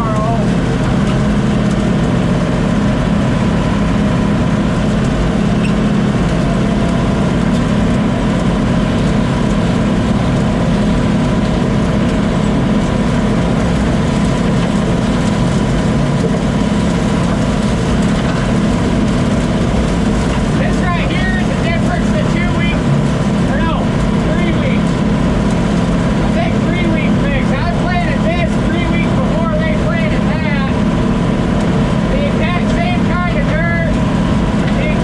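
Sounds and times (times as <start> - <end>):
combine harvester running: 0.0 - 35.0.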